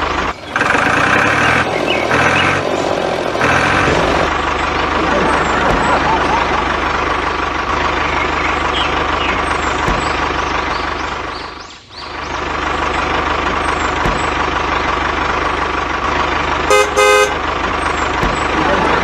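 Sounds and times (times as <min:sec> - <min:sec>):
tractor engine knocking: 0:00.0 - 0:19.0
short horn toot: 0:16.7 - 0:17.4.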